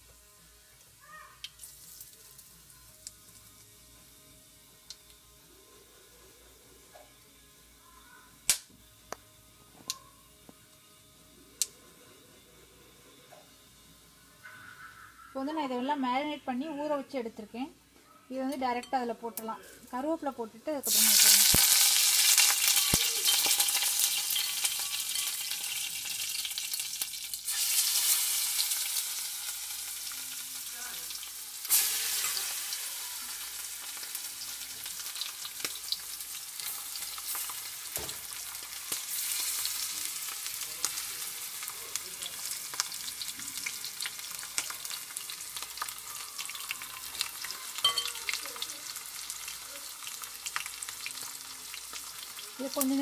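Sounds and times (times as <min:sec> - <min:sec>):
meat sizzling in hot oil: 0:01.0 - 0:05.2, 0:19.9 - 0:53.0.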